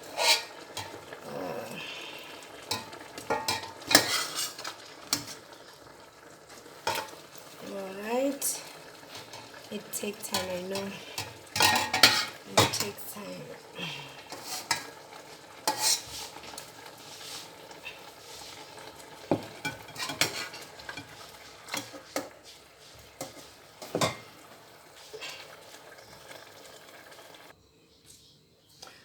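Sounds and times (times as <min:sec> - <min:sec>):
metal utensil scraping a pot: 0:00.0 - 0:01.2, 0:02.5 - 0:05.7, 0:06.8 - 0:07.3, 0:08.4 - 0:13.2, 0:14.3 - 0:24.3.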